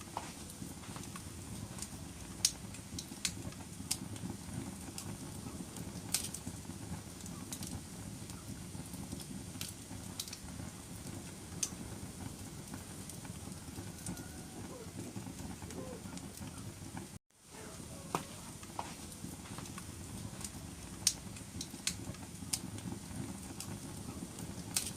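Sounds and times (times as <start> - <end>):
fire crackles and pops: 0.0 - 24.9
low rumble of flames: 0.0 - 24.9.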